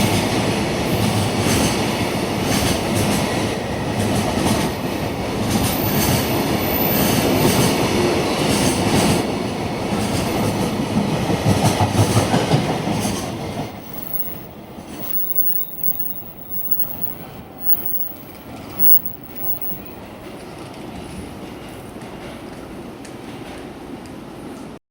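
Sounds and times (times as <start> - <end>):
train wheels clattering on rails: 0.0 - 18.3, 19.2 - 24.7
wheel squeal: 13.8 - 19.9.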